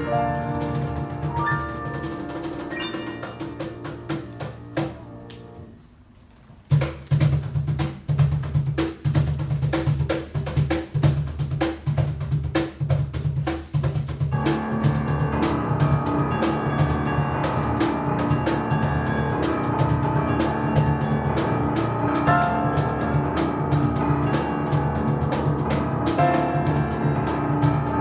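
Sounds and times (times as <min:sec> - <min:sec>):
drum beat: 0:00.0 - 0:05.2
piano playing: 0:00.0 - 0:06.0, 0:14.4 - 0:28.0.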